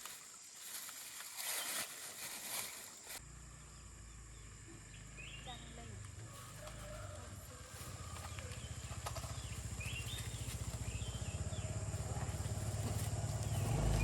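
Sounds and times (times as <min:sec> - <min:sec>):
faint bird chirps: 0:03.2 - 0:06.0
small engine puttering: 0:06.0 - 0:14.0.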